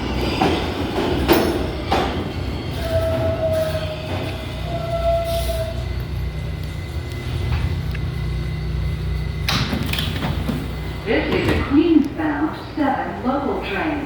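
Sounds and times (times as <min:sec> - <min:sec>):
subway train rumble: 0:00.0 - 0:14.0
high squeal: 0:02.3 - 0:09.3.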